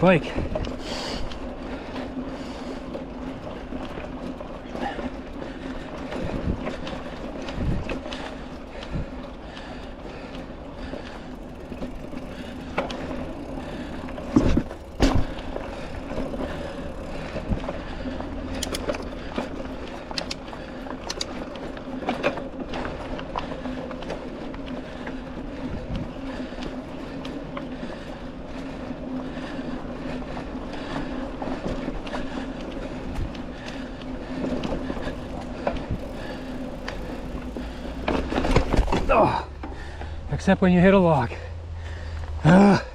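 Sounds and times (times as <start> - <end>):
bike rolling hum and rattle: 0.0 - 42.9
bike knocking over bumps: 11.7 - 19.8, 34.6 - 40.2.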